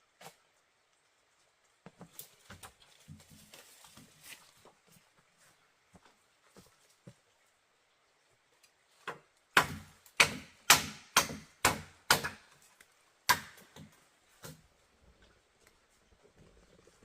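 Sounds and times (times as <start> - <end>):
blade chopping into wood: 9.6 - 12.5, 13.3 - 14.6.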